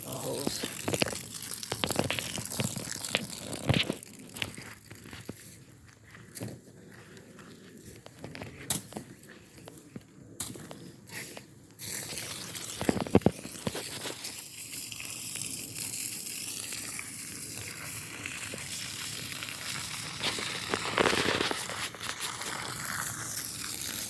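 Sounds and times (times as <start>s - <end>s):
hose spraying water: 0.0s - 5.5s, 10.4s - 24.0s.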